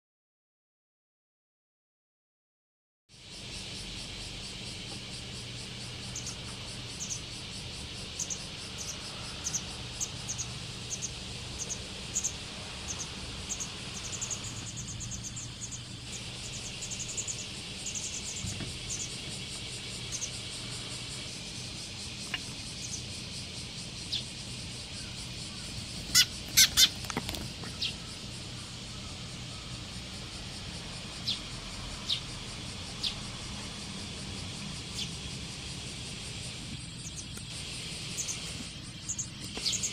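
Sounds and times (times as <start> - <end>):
steady high hiss: 3.1 - 39.9
small birds chirping: 3.2 - 39.9
loud sharp bird calls: 5.8 - 21.3, 21.9 - 30.3, 36.5 - 39.9.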